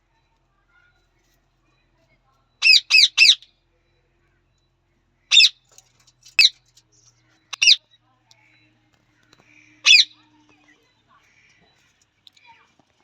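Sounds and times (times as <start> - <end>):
parrot squawking: 2.6 - 3.4, 5.3 - 5.6, 7.5 - 7.8, 9.8 - 10.2.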